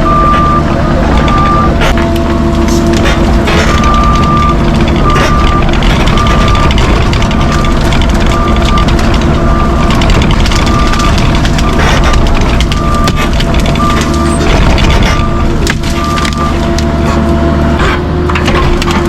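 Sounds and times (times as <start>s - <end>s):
backup alarm beeping: 0.0s - 1.9s, 3.5s - 16.6s
diesel engine running: 0.0s - 19.0s
knocks and clatter: 1.1s - 16.9s, 17.8s - 19.0s.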